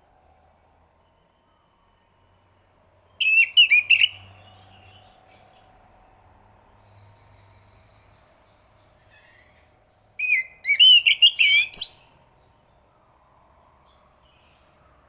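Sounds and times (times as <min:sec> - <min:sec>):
thrush singing whistled notes: 0:03.1 - 0:05.6, 0:10.2 - 0:12.2.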